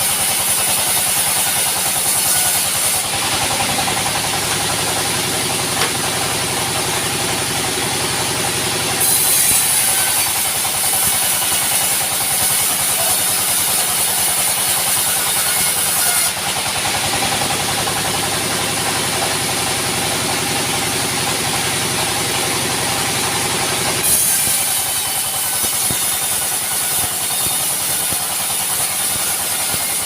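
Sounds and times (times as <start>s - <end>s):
sawmill engine running: 0.0s - 30.0s.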